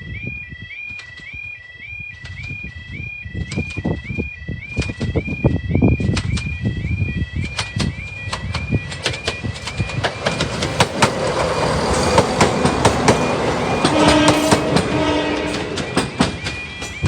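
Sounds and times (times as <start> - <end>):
warbling crossing alarm: 0.0 - 17.0
train wheels clicking over rail joints: 6.0 - 17.0
diesel train passing: 6.9 - 17.0.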